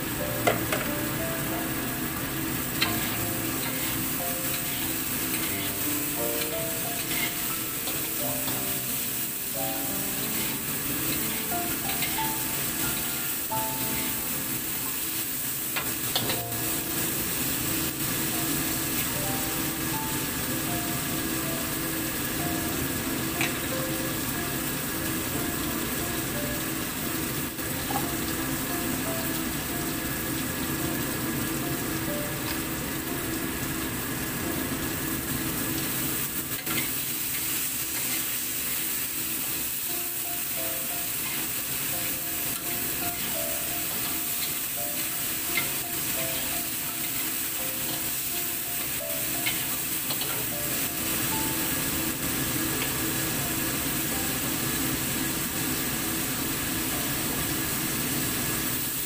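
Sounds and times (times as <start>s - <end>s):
vegetables sizzling in hot oil: 0.0s - 59.0s
metal spatula scraping: 7.0s - 7.5s.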